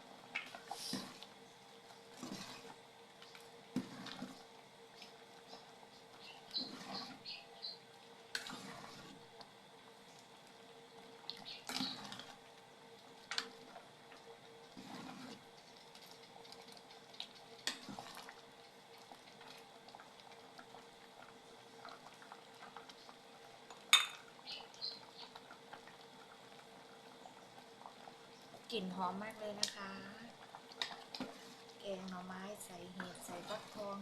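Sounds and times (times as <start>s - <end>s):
faint steady hum: 0.0s - 34.0s
utensil scraping against pot: 2.2s - 2.7s, 6.5s - 7.2s, 14.8s - 15.4s, 33.0s - 34.0s.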